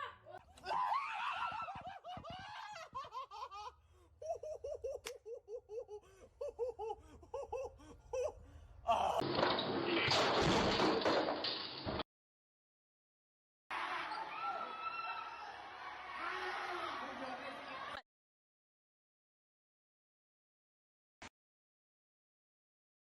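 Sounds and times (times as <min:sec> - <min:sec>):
high-pitched laughter: 0:00.0 - 0:08.4.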